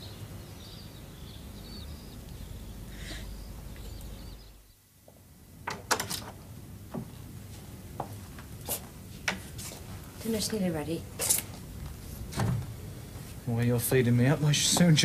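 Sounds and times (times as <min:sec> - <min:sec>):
faint birdsong chirping: 0:00.0 - 0:05.0.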